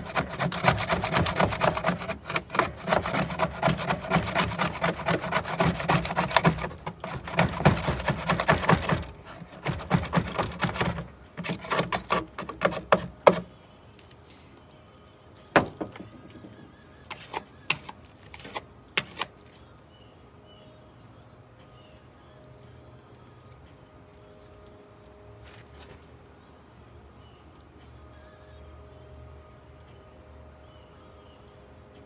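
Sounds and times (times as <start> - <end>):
rapid scratching and rubbing: 0.0 - 13.3, 17.1 - 19.3.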